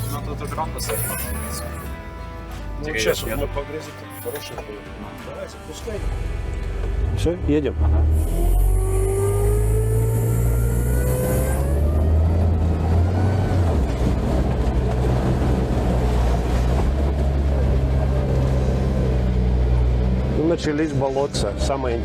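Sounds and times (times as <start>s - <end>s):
vehicle engine droning: 5.8s - 22.0s.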